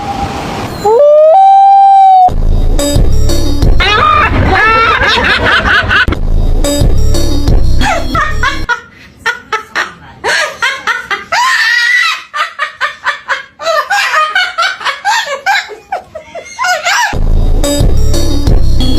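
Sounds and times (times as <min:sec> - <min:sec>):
background music: 0:02.3 - 0:08.7, 0:17.2 - 0:18.9
laughter in short bursts: 0:07.8 - 0:17.2.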